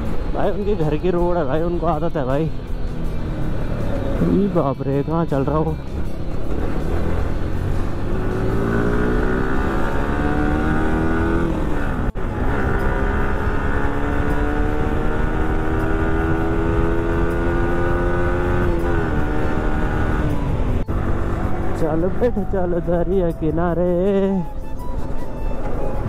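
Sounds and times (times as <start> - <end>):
motorcycle engine accelerating: 5.8 - 23.1.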